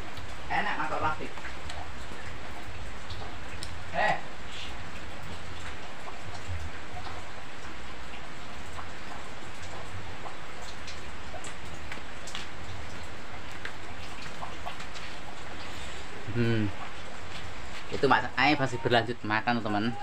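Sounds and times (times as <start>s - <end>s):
steady rain falling: 0.0s - 20.0s
light ticks: 3.1s - 3.8s.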